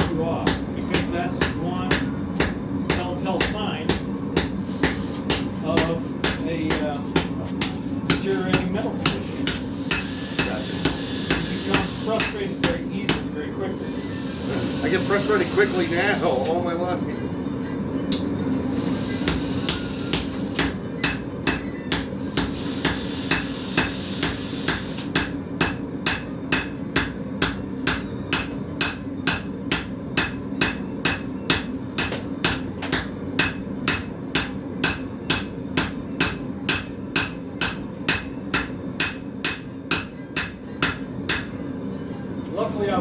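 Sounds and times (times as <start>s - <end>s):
hammer forging steel on anvil: 0.0s - 16.6s, 18.1s - 41.6s
steady low hum: 0.0s - 43.0s.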